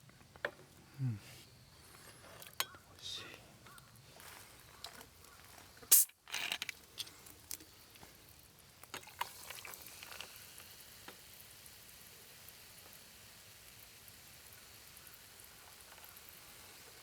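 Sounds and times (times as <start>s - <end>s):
food sizzling over campfire: 0.0s - 17.0s
scattered pops: 5.8s - 6.4s.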